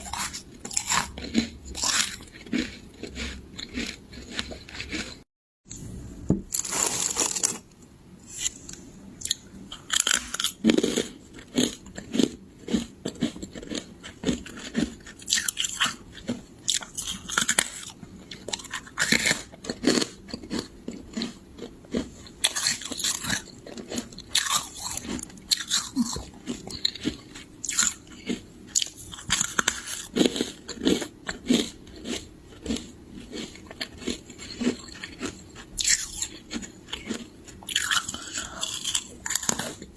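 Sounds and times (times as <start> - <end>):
frost being bitten and chewed: 0.0 - 5.2, 8.4 - 39.9.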